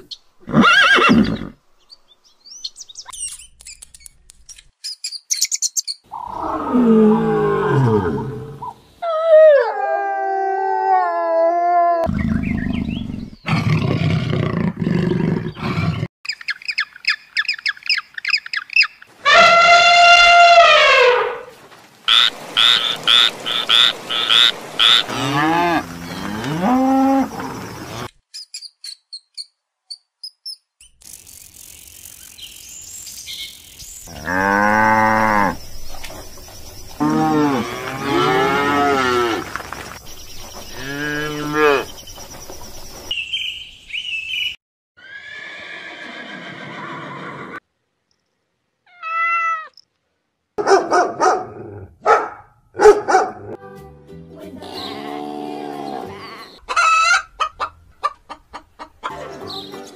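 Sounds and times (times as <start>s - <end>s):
high-pitched chirping calls: 4.8s - 6.3s, 16.3s - 19.1s, 28.3s - 34.2s
cattle mooing: 25.0s - 28.0s, 34.1s - 35.6s, 37.0s - 39.5s.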